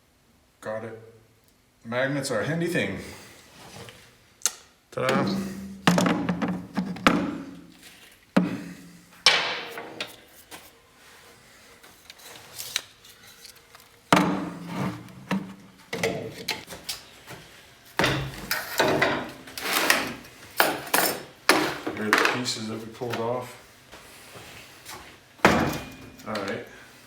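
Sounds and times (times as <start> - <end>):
metal tools knocking and clattering: 25.4 - 26.6.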